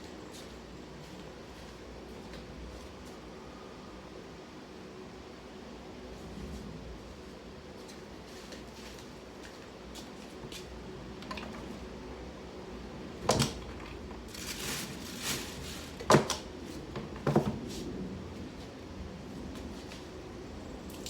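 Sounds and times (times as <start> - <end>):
rustling or scraping: 14.2 - 18.7.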